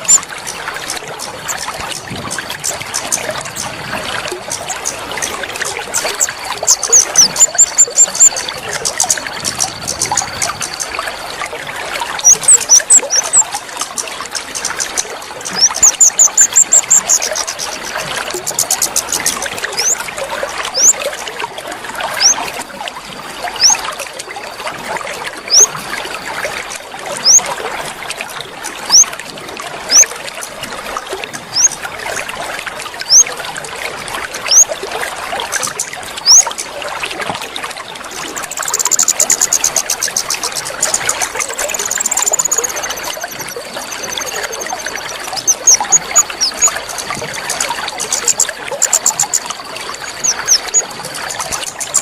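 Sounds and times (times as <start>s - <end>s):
bird whistling and trilling: 0.0s - 0.2s, 6.7s - 8.5s, 12.2s - 13.6s, 14.6s - 20.0s, 20.8s - 21.0s, 23.6s - 23.8s, 31.6s - 31.8s, 33.1s - 33.3s, 34.5s - 34.7s, 36.3s - 36.5s, 38.4s - 47.1s
water trickling: 0.0s - 52.0s.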